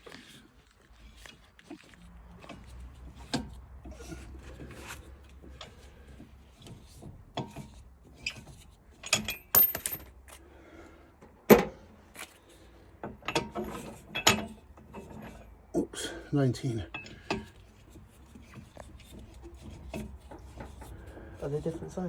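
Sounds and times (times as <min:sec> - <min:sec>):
metal tools and nuts clinking: 0:09.0 - 0:10.2, 0:13.2 - 0:15.4.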